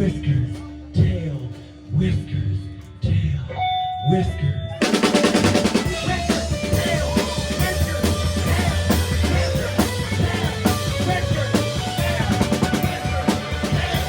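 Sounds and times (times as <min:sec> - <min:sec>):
live rock band playing: 0:04.8 - 0:14.0
rapid drum hits: 0:04.8 - 0:14.0
low bass line: 0:05.9 - 0:14.0.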